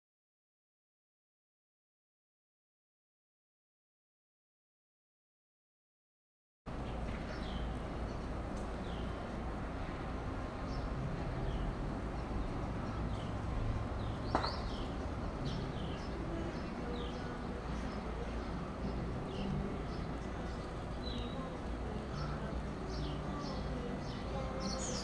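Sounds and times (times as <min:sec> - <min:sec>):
songbird chirping: 0:06.7 - 0:25.0.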